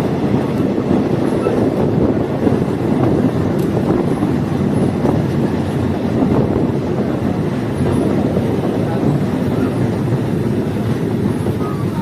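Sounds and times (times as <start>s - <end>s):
railcar rumbling along track: 0.0s - 12.0s.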